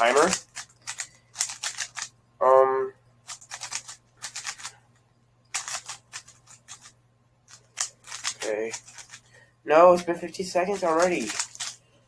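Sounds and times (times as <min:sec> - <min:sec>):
puzzle cube rattling clicks: 0:00.0 - 0:02.1, 0:03.2 - 0:04.7, 0:05.5 - 0:09.3, 0:09.9 - 0:11.8.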